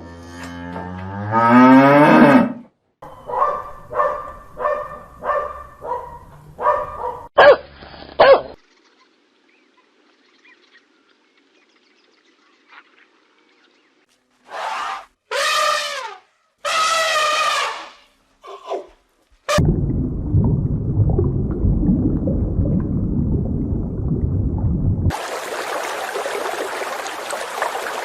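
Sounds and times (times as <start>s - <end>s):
cattle mooing: 0.0s - 2.7s.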